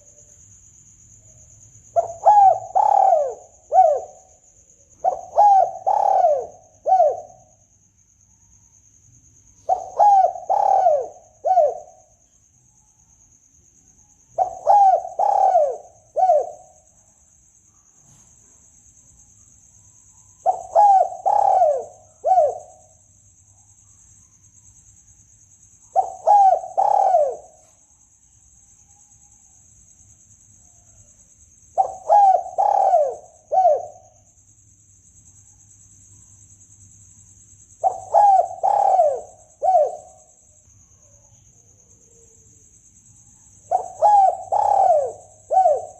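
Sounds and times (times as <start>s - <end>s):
dove cooing: 2.0s - 4.3s, 5.0s - 7.6s, 9.6s - 12.2s, 14.4s - 16.8s, 20.4s - 22.9s, 25.9s - 27.7s, 31.8s - 34.2s, 37.8s - 40.2s, 43.6s - 45.9s.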